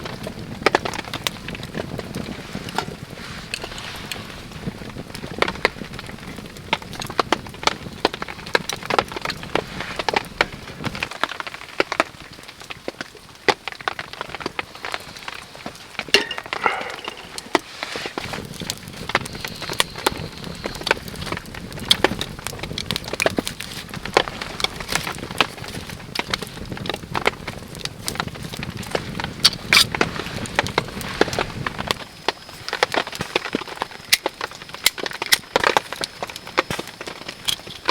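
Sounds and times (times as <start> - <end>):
campfire crackling and popping: 0.0 - 37.9
rain pattering: 0.0 - 37.9.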